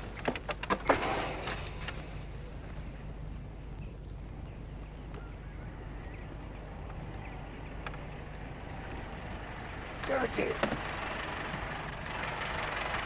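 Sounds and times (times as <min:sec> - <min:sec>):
steady low rumble: 0:00.0 - 0:13.0
faint bird chirps: 0:03.6 - 0:09.0.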